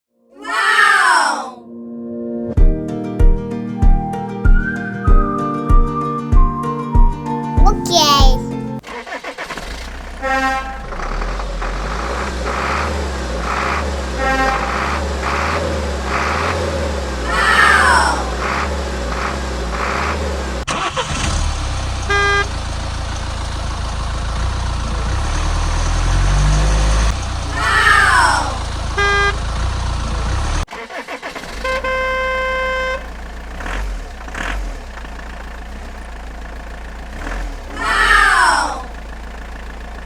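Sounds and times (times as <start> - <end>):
low engine rumble: 34.9 - 40.0.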